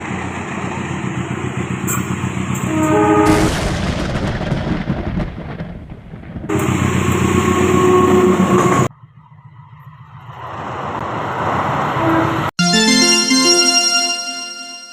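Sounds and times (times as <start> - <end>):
train rumbling past: 0.0 - 3.5, 6.5 - 12.5
train horn: 2.6 - 3.4, 7.4 - 8.9, 11.9 - 12.5
thunderclap: 3.2 - 7.3.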